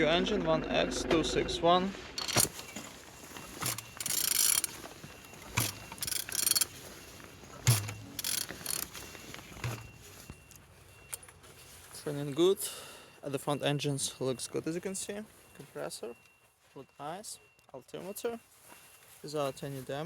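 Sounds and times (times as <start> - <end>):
mechanical rasping: 2.1 - 2.8, 3.4 - 6.8, 7.6 - 9.0
engine knocking when turned: 3.6 - 4.8, 5.5 - 6.7, 7.6 - 9.0.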